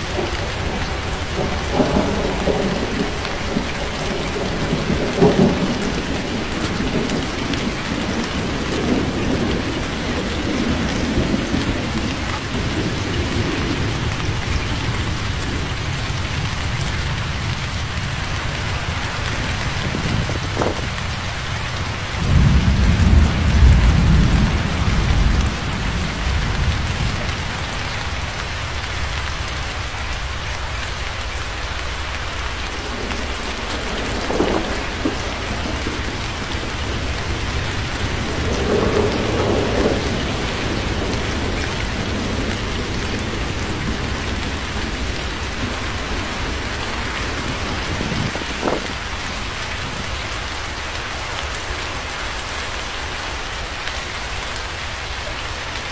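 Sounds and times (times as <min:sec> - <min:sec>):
low rumble of thunder: 0:00.0 - 0:55.9
steady rain: 0:00.0 - 0:55.9.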